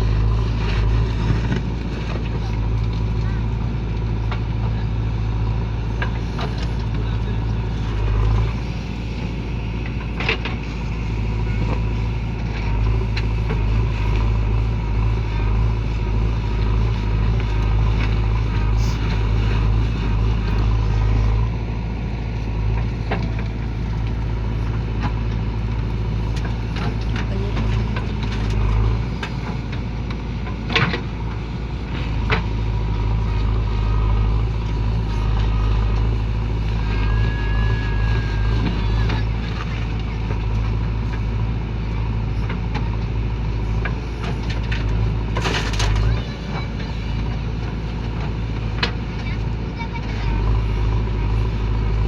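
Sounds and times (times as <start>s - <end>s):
heavy diesel engine running: 0.0s - 52.0s.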